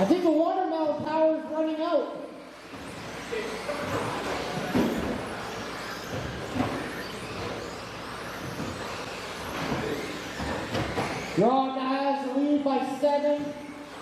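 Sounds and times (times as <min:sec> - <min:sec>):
electric motors whining: 0:00.0 - 0:14.0
cars on the track: 0:01.7 - 0:11.5, 0:12.8 - 0:14.0.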